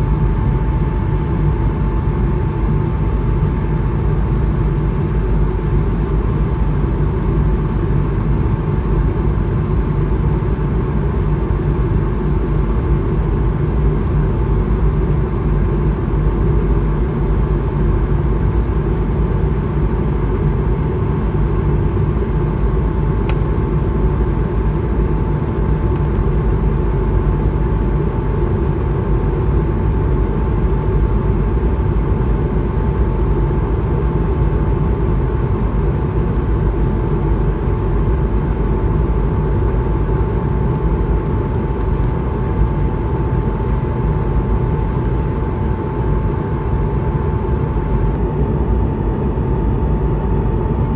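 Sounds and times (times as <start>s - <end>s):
airplane cabin rumble: 0.0s - 50.9s
faint steady hum: 0.0s - 50.9s
small click: 23.2s - 23.5s.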